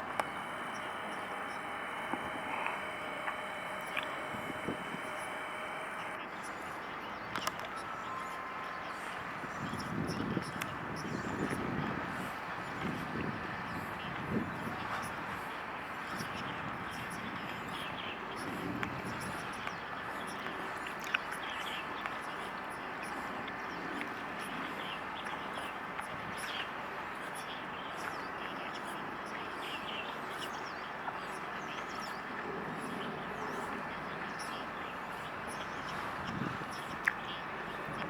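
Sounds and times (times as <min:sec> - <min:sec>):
small clicks: 0:00.0 - 0:06.2, 0:07.3 - 0:07.8
outdoor background noise: 0:00.0 - 0:38.0.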